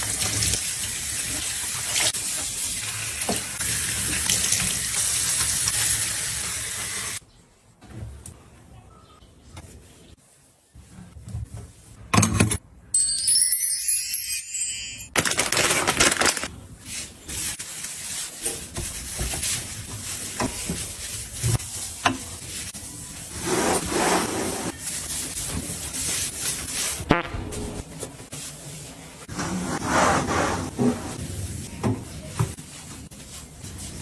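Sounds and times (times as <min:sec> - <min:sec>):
bright chiming: 0:13.0 - 0:15.2.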